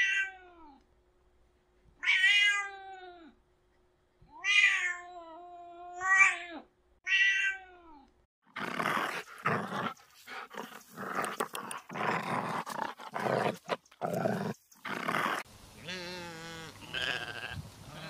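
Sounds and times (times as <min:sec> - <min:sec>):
cat meowing: 0:00.0 - 0:00.8, 0:02.0 - 0:03.3, 0:04.3 - 0:08.0.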